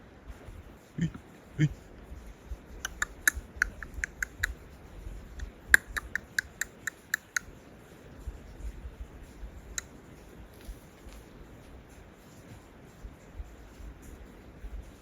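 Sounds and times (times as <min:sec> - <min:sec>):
sharp clicks and ticks: 0:02.5 - 0:11.8.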